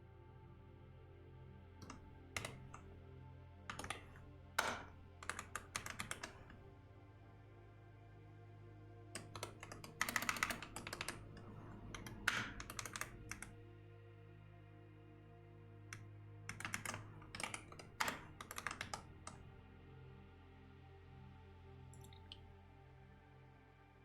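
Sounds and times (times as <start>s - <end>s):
soft ambient background music: 0.0s - 24.0s
computer keyboard typing: 1.8s - 2.8s, 3.7s - 6.6s, 9.2s - 13.6s, 16.5s - 19.4s.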